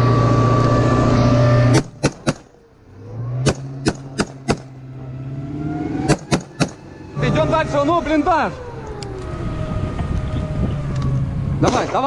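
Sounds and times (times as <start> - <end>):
vehicle engine drone: 0.0 - 12.0
gunfire cracks: 3.4 - 4.7, 6.1 - 6.8, 11.6 - 12.0.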